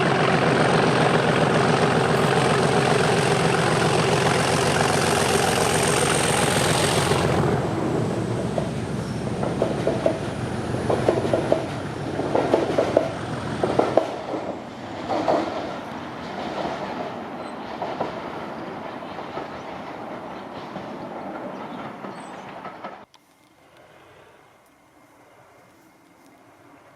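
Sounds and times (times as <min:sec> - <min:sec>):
train wheels clicking over rail joints: 0:00.0 - 0:23.1
diesel locomotive engine under power: 0:00.0 - 0:26.9
wheel squeals: 0:02.0 - 0:13.3.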